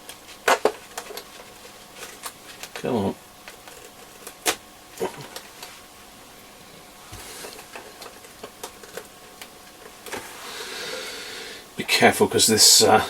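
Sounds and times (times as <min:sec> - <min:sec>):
clicks and knocks of radio chassis: 0:00.0 - 0:05.7, 0:07.6 - 0:10.2.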